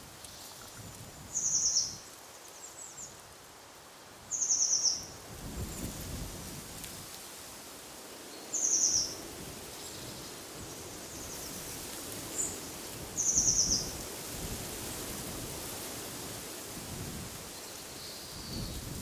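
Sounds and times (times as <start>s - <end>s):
wind rustling leaves: 0.0s - 19.0s.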